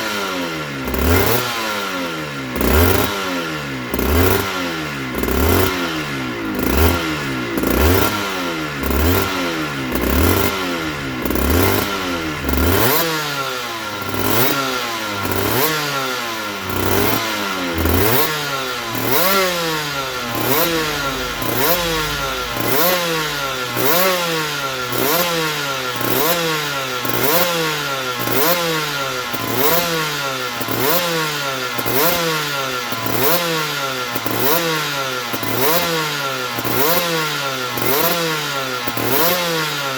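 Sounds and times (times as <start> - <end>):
two-stroke engine revving: 0.0 - 39.9
heavy low thumps: 9.8 - 13.6, 17.7 - 25.8.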